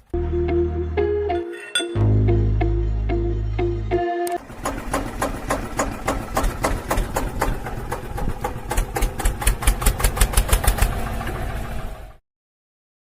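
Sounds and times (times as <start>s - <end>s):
diesel engine chugging with knocks: 4.4s - 12.2s.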